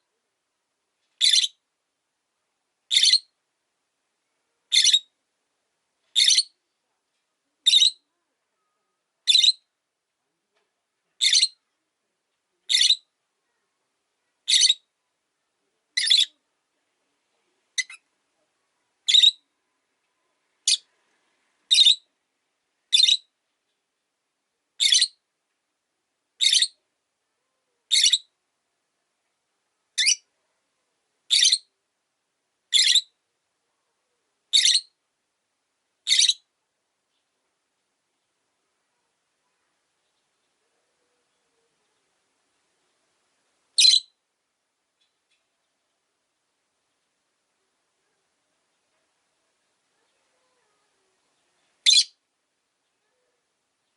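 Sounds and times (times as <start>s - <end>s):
lovebird high-pitched calls: 1.2s - 1.6s, 2.9s - 3.4s, 4.7s - 5.1s, 6.2s - 6.6s, 7.6s - 8.1s, 9.2s - 9.7s, 11.2s - 11.6s, 12.7s - 13.1s, 14.4s - 14.9s, 16.0s - 16.4s, 17.8s - 18.0s, 19.0s - 19.5s, 20.6s - 20.9s, 21.7s - 22.1s, 22.9s - 23.3s, 24.8s - 25.2s, 26.4s - 26.8s, 27.9s - 28.3s, 30.0s - 30.3s, 31.3s - 31.7s, 32.7s - 33.2s, 34.5s - 35.0s, 36.0s - 36.5s, 43.8s - 44.2s, 51.8s - 52.2s.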